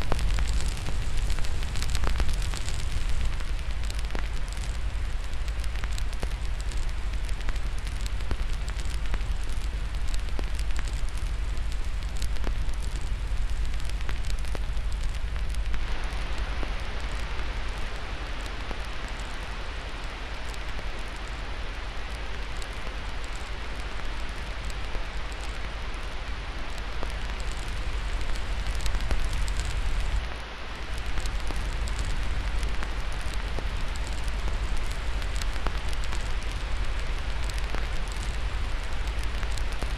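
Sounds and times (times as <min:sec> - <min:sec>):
fire crackling and popping: 0:00.0 - 0:39.9
steady hiss: 0:00.0 - 0:39.9.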